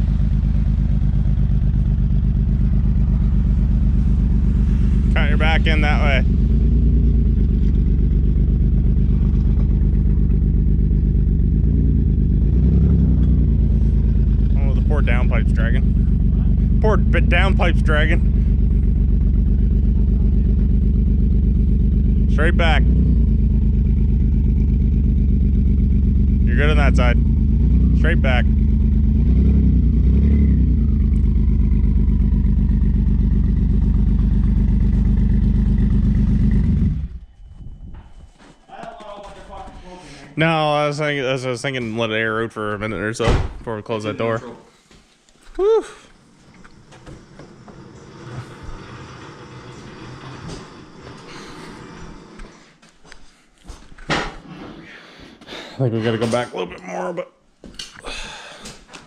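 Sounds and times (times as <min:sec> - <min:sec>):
car engine rumbling: 0:00.0 - 0:38.4, 0:45.6 - 0:52.6.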